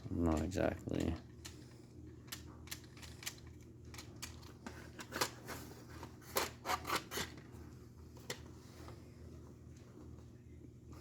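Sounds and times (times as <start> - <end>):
light clicks of small parts: 0.2 - 5.3.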